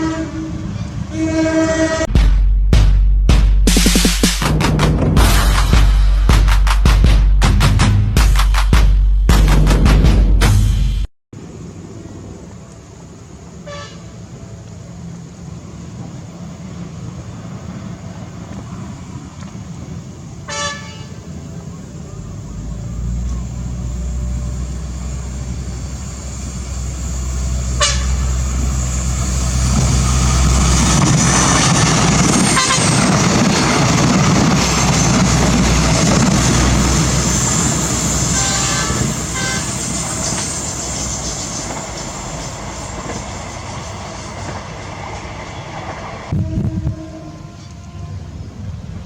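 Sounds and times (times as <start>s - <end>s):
train horn blasts: 0.0s - 2.1s, 13.5s - 14.4s, 20.4s - 21.4s, 26.6s - 30.8s, 32.4s - 33.1s, 37.9s - 41.8s, 46.3s - 48.8s
locomotive engine rumble: 0.0s - 2.8s, 11.4s - 49.0s
train wheel noise: 11.4s - 49.0s.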